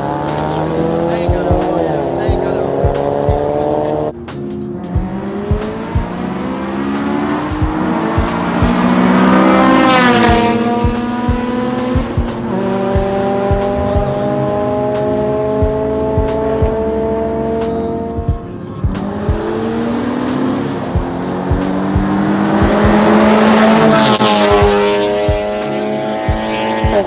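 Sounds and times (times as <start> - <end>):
engine pulling steadily: 0.0 - 27.0
music with steady beat: 0.0 - 27.0
car engine accelerating past: 4.8 - 18.3, 18.9 - 27.0.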